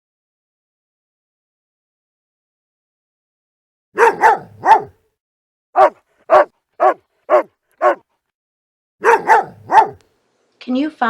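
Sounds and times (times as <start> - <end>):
dog barking: 4.0 - 5.0, 5.8 - 8.0, 9.0 - 10.0.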